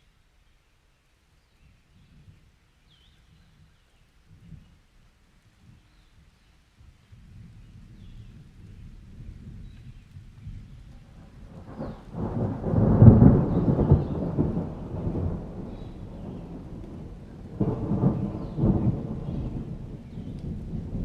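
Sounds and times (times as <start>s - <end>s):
rain: 0.0s - 21.0s
thunder rolling: 10.6s - 21.0s.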